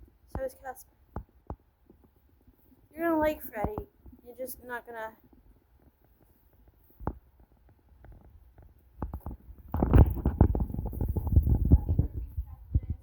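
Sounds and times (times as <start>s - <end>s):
low thumps and scraping knocks: 8.0s - 13.0s.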